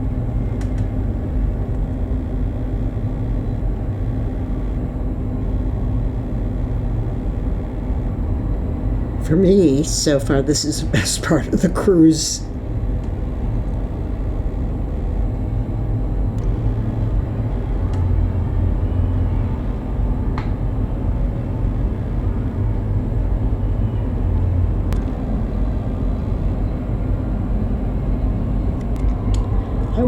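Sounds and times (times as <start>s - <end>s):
ship engine low rumble: 0.0s - 30.0s
faint clicks: 0.6s - 0.9s.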